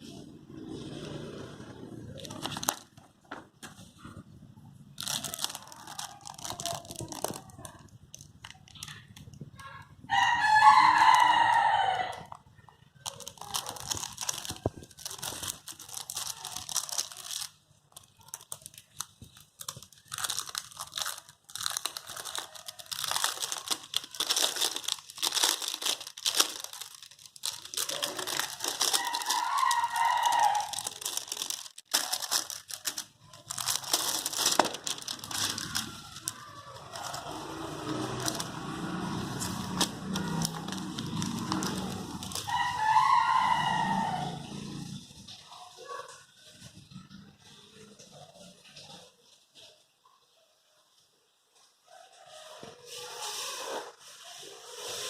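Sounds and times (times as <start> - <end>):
plastic packaging crinkling: 1.9 - 44.6.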